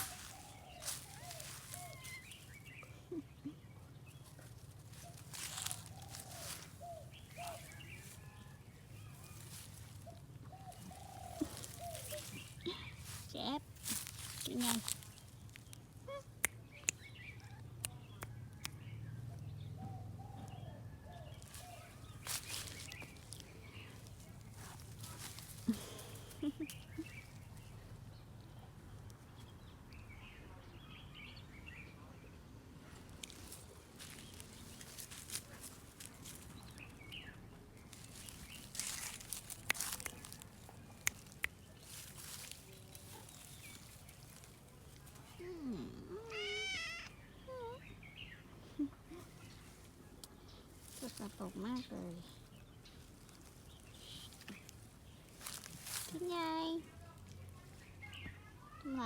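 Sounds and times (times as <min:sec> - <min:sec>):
rustling and scraping: 0:00.0 - 0:02.6, 0:21.4 - 0:27.4
bird chirps: 0:00.0 - 0:24.0
birds calling: 0:00.0 - 0:32.0, 0:32.8 - 0:57.0
faint outdoor background: 0:00.0 - 0:59.0.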